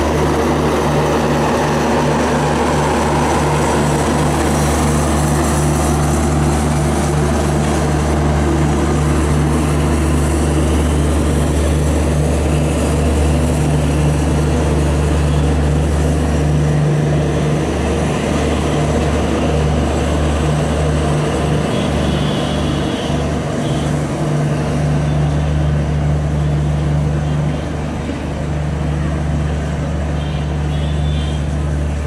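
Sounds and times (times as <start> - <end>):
train coaches rumbling past: 0.0 - 32.0.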